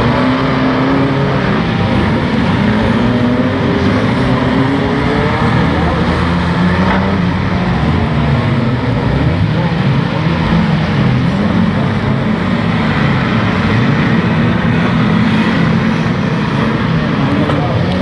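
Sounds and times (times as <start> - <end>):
car engines revving hard: 0.0 - 18.0.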